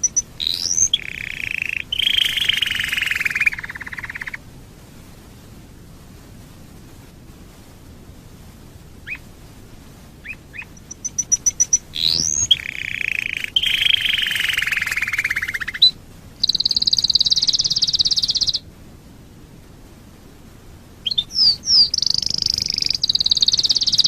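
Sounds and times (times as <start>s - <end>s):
canary singing and trilling: 0.0s - 4.4s, 9.0s - 9.3s, 10.2s - 18.6s, 21.0s - 24.0s.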